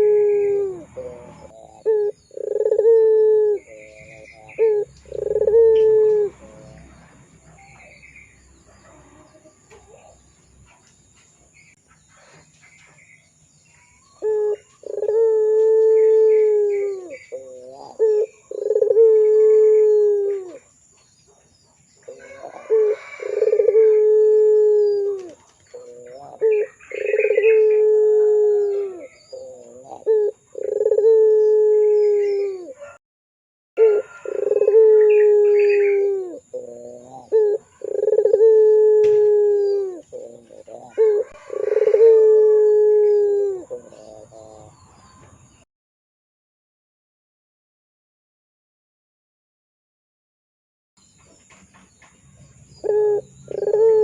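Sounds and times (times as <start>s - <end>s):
dove cooing: 0.0s - 6.9s, 14.2s - 20.7s, 22.1s - 33.0s, 33.8s - 44.8s, 52.8s - 54.0s.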